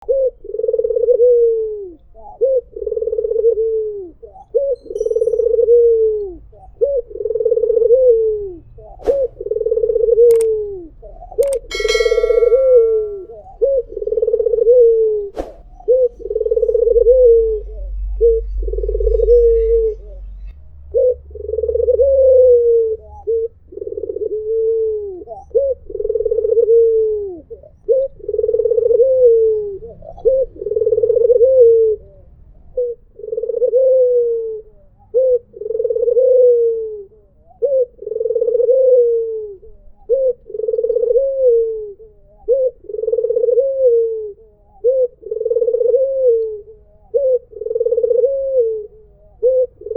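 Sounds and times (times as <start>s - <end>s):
dove cooing: 0.0s - 20.3s, 20.9s - 49.9s
short sharp higher sound: 11.7s - 13.2s.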